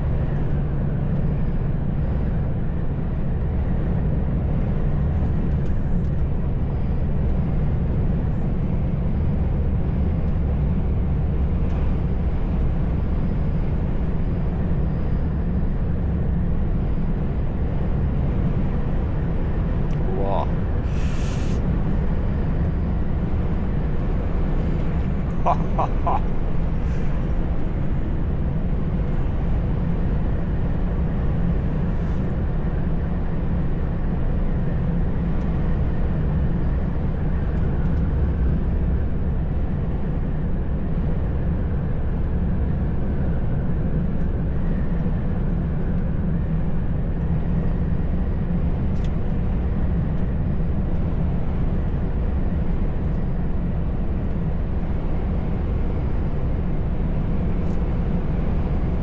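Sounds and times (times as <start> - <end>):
truck engine drone: 0.0 - 32.6.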